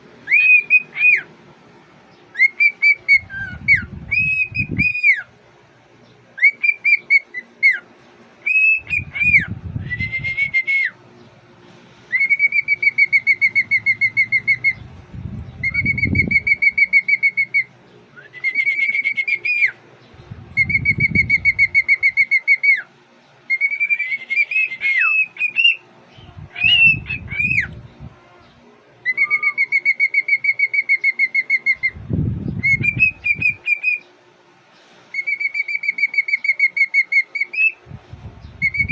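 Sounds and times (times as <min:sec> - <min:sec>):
cockatiel whistling: 0:00.2 - 0:01.3, 0:02.4 - 0:05.3, 0:06.4 - 0:07.8, 0:08.4 - 0:11.0, 0:12.1 - 0:14.8, 0:15.6 - 0:19.8, 0:20.6 - 0:22.9, 0:23.5 - 0:25.8, 0:26.5 - 0:27.7, 0:29.1 - 0:32.0, 0:32.6 - 0:34.1, 0:35.1 - 0:37.8, 0:38.6 - 0:38.9.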